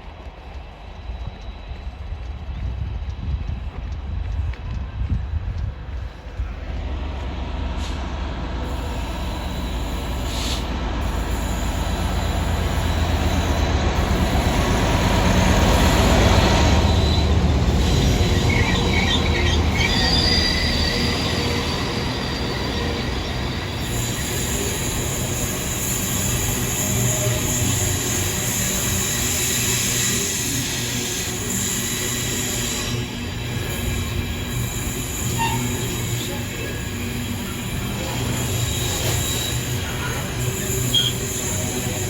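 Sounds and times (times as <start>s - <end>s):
freight train wheels rumbling: 0.0s - 42.0s
high-pitched wheel squeals: 16.4s - 42.0s.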